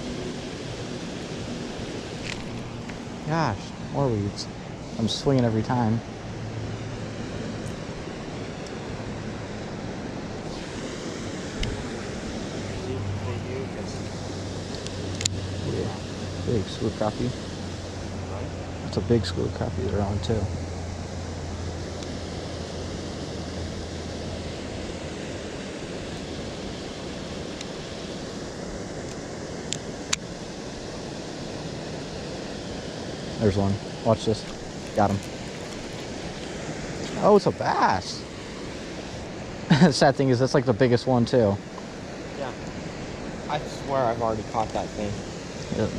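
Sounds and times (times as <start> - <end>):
low hum: 0.0 - 45.9
wind rushing on microphone: 0.0 - 45.9
wind on microphone: 44.5 - 45.9.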